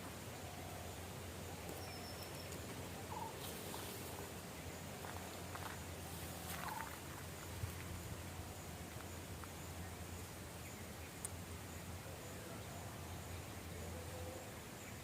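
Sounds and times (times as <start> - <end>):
steady low hum: 0.0 - 15.0
bird calls: 0.3 - 7.8.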